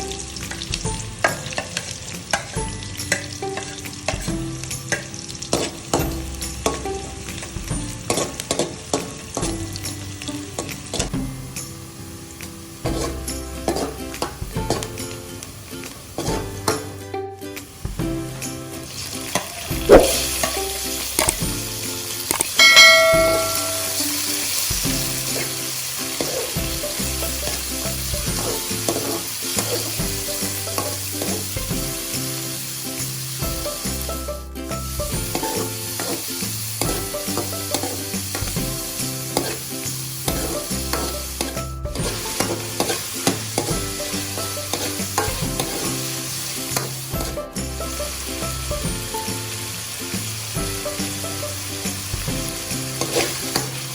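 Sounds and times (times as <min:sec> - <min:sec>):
food sizzling in oil: 0:00.0 - 0:53.9
utensil scraping pan: 0:19.8 - 0:20.6, 0:42.0 - 0:46.0, 0:53.0 - 0:53.7
ringing metal clang: 0:22.6 - 0:24.2.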